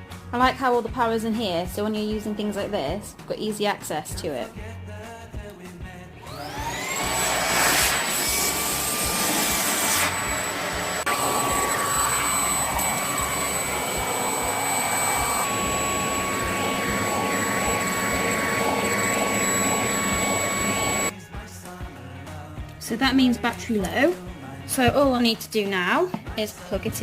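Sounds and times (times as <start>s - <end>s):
vacuum cleaner motor whining: 6.2s - 21.1s.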